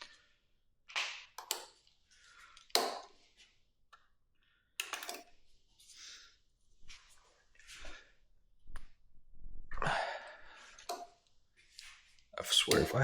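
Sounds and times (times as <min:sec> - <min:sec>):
person breathing and sighing: 0:09.7 - 0:10.9
hand tools clicking and knocking: 0:12.6 - 0:13.0.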